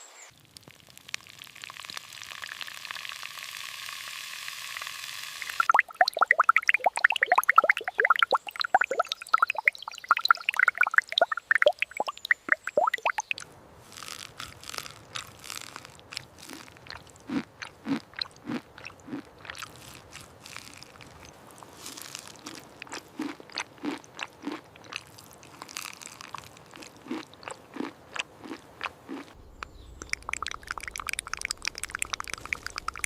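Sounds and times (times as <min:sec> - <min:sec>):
dense crackling: 0:05.5 - 0:17.1, 0:29.3 - 0:33.0
person chewing crunchy food: 0:05.6 - 0:33.0.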